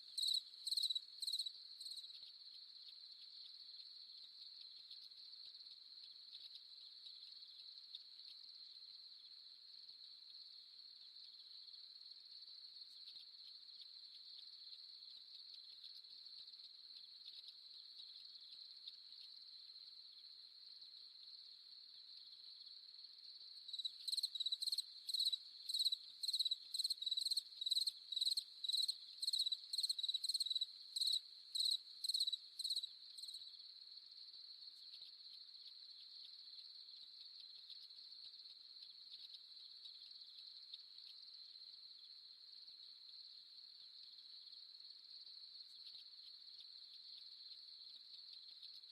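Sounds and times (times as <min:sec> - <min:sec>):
close cricket chirping: 0:00.0 - 0:48.9
high-pitched cricket chorus: 0:00.0 - 0:48.9.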